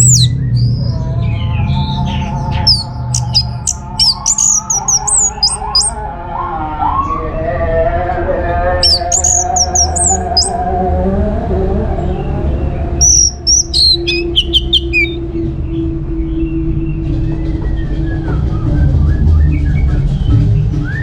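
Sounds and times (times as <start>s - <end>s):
thrush chirping song: 0.0s - 6.0s, 8.8s - 10.6s, 13.0s - 15.2s.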